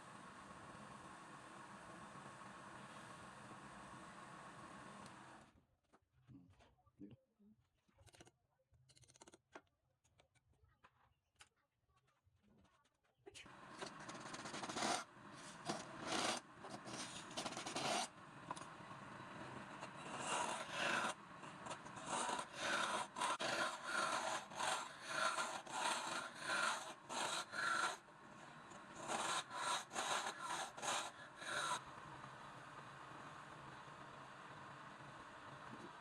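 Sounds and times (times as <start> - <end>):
hand tool scraping on wood: 13.9 - 18.1, 19.8 - 28.0, 28.9 - 31.8.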